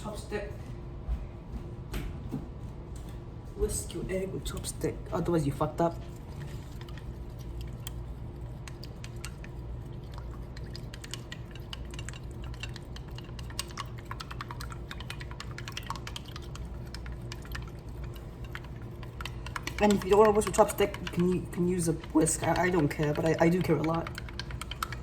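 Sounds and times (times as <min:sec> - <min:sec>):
steady low hum: 0:00.0 - 0:25.0
chopsticks clicking against a bowl: 0:08.6 - 0:25.0.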